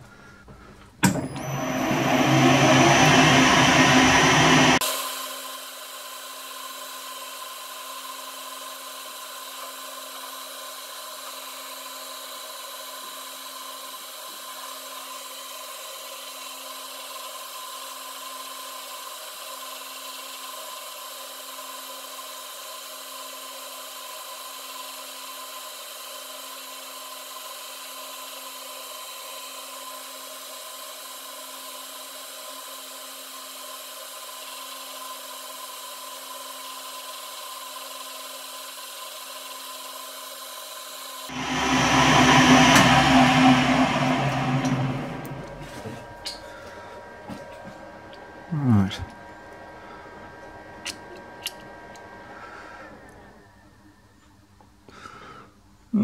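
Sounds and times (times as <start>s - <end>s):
metal lathe humming: 1.0s - 4.8s, 41.3s - 53.4s
hiss of cutting: 1.4s - 10.6s.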